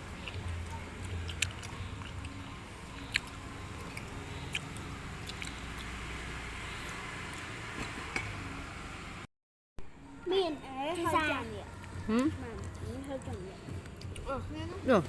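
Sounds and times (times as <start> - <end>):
people chewing: 0.0 - 6.1, 11.7 - 14.4.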